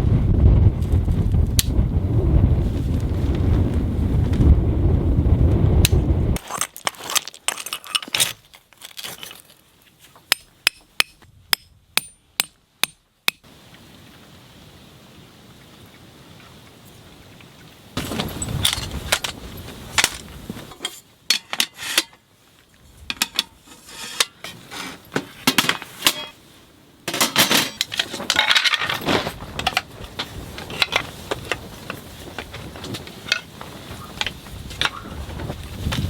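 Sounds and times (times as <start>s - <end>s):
metallic clinks and knocks: 23.1s - 24.6s.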